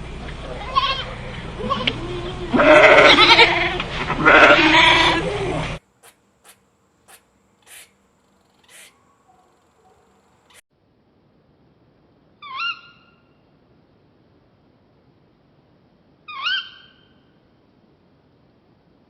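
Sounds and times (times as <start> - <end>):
animal bleating call: 0.6 - 5.7.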